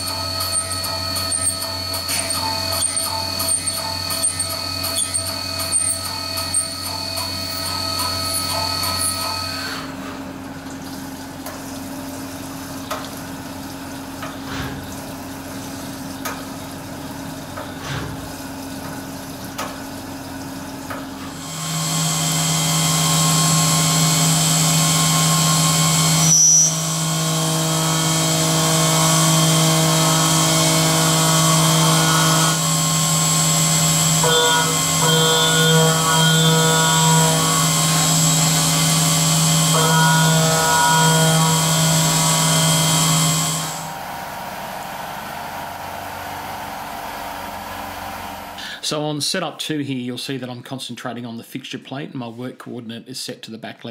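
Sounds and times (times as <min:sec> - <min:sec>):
milling machine spindle whine: 0:00.0 - 0:10.6, 0:21.3 - 0:48.5
low machine hum: 0:00.0 - 0:49.0.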